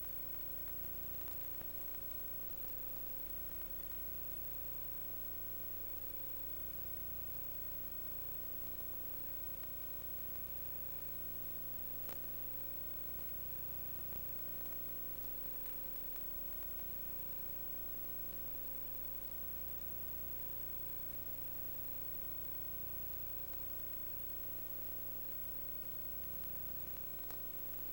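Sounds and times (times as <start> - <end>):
electrical hum and hiss: 0.0 - 27.9
faint click: 12.0 - 12.4, 26.4 - 27.9.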